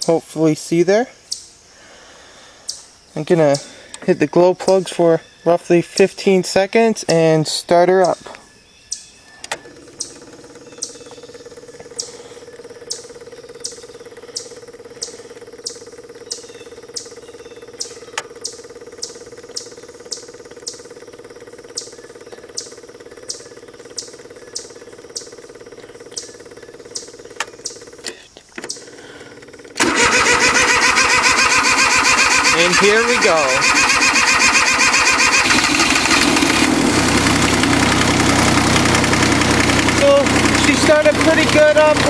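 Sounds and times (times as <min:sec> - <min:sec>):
diesel engine cranking and running: 0:09.3 - 0:42.0.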